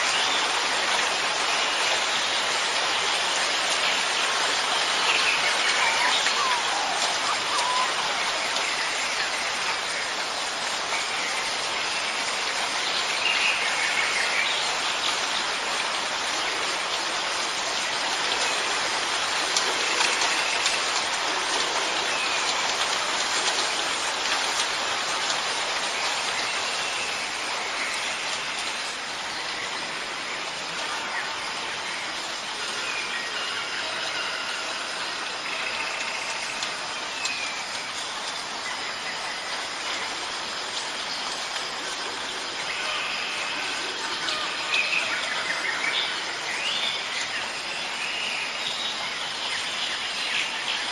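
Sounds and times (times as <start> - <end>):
steady rain falling: 0.0 - 50.9
faint bird calls: 5.4 - 8.9.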